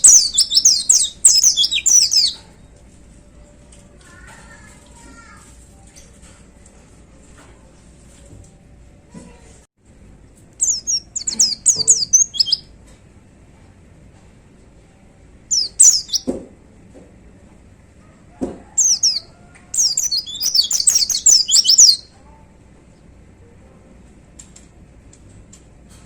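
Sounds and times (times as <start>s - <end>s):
bird twittering song: 0.0s - 2.4s, 10.6s - 12.7s, 15.5s - 16.3s, 18.8s - 22.1s.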